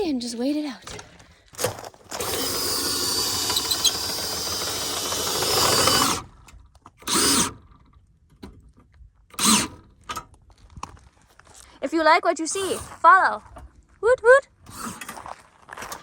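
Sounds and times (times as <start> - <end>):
motor whirring: 2.1 - 7.6, 9.4 - 9.8, 12.5 - 12.9, 14.7 - 15.2.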